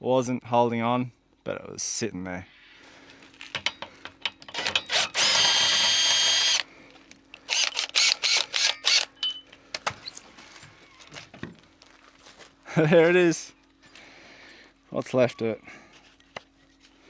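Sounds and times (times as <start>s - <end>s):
drill clicks: 3.6s - 6.7s, 7.3s - 10.0s
power drill running: 4.5s - 6.7s, 7.4s - 9.2s.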